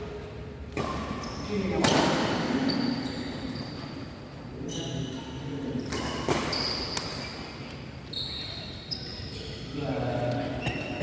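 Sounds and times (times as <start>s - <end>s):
shoes squeaking on court floor: 0.8s - 1.9s, 2.6s - 11.0s.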